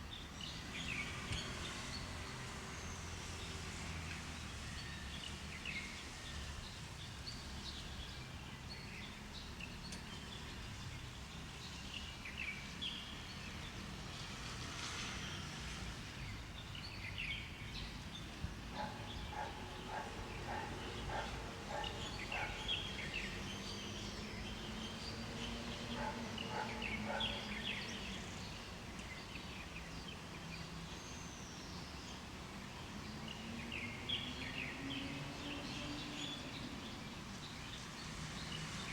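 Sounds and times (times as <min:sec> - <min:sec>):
birds chirping and trilling: 0:16.8 - 0:32.2.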